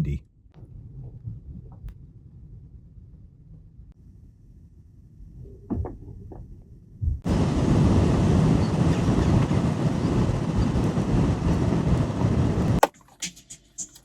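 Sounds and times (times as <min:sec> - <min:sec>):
strong wind on microphone: 0:07.0 - 0:12.8.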